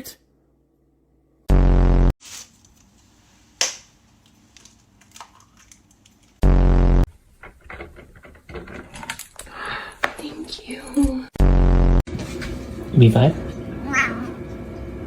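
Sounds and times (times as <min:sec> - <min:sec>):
low buzzing blasts: 0:01.5 - 0:02.2, 0:06.4 - 0:07.1.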